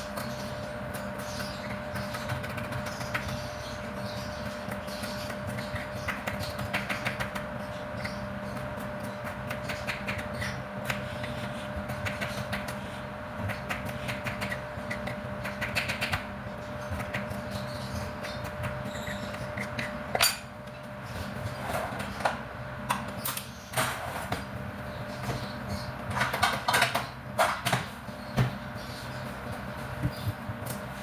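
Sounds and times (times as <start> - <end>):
steady mechanical hum: 0.0 - 31.0
utensils clicking and clattering: 18.6 - 20.8.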